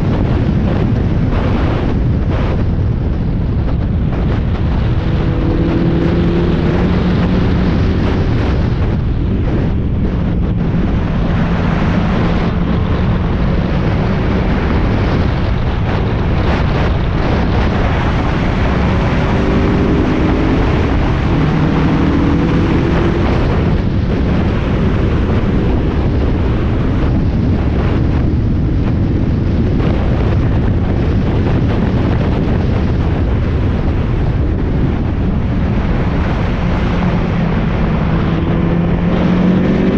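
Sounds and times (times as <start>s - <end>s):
road noise: 0.0s - 39.9s
wind buffeting: 0.0s - 39.9s
car engine revving: 4.0s - 27.1s, 35.1s - 39.9s.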